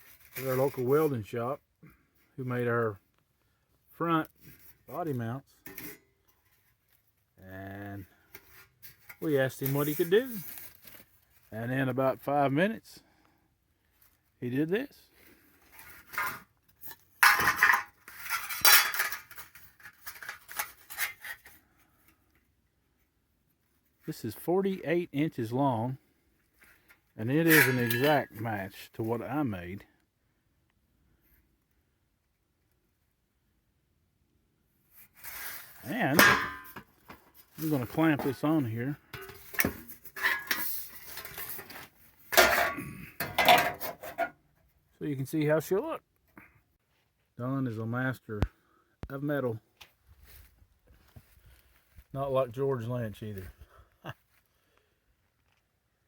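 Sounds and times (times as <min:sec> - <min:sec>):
sheet metal clinking and rattling: 0:17.2 - 0:21.4, 0:27.5 - 0:28.3, 0:36.1 - 0:38.4, 0:39.2 - 0:41.6
sheet metal clanking and scraping: 0:27.4 - 0:28.3, 0:36.1 - 0:44.3.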